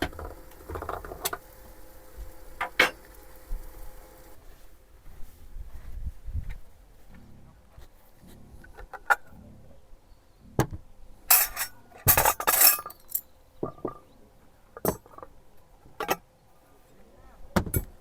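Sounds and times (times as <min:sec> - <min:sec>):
tableware clattering: 0:02.6 - 0:03.1, 0:11.3 - 0:14.1
glasses and dishes clinking: 0:11.3 - 0:14.0.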